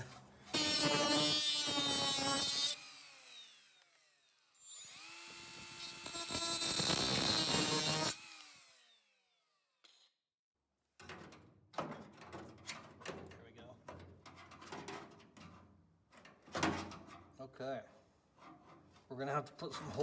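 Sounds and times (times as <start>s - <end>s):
power cutting tool cutting metal: 0.5s - 9.2s
motor winding down whine: 2.8s - 9.4s.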